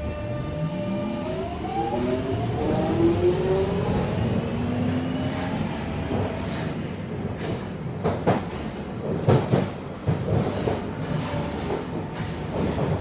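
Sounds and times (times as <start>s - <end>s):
train rumbling: 0.0s - 13.0s
wheels clacking on track: 6.1s - 13.0s.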